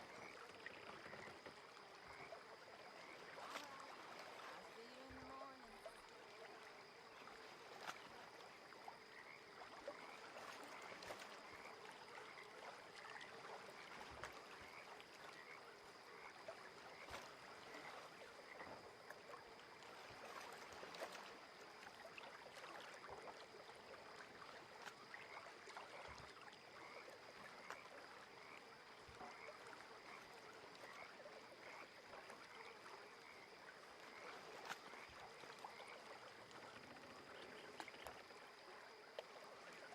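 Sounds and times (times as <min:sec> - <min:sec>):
gentle water: 0:00.0 - 0:39.9
frogs calling: 0:08.5 - 0:19.2, 0:25.1 - 0:39.0.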